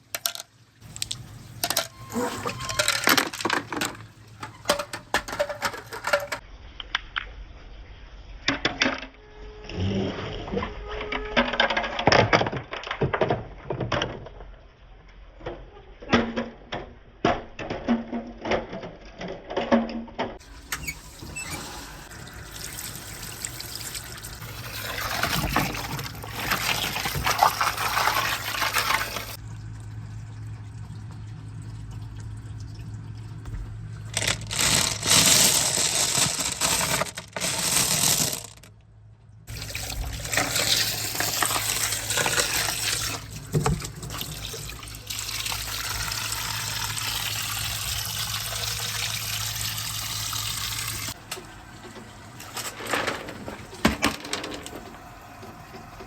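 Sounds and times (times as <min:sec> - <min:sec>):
water running and splashing: 0:20.4 - 0:36.7, 0:39.5 - 0:53.8
marbles clacking along track: 0:34.1 - 0:38.7.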